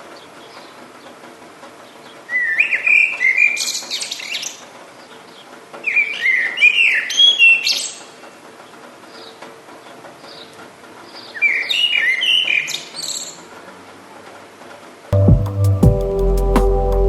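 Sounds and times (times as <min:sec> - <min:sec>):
songbird singing: 0:01.8 - 0:13.5.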